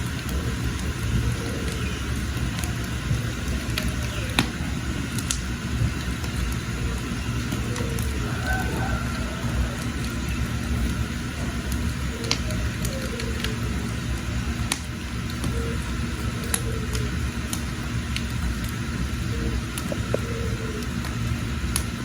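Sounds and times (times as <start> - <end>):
fire crackles and pops: 0.0 - 22.0
wood fire rumbling: 0.0 - 22.0.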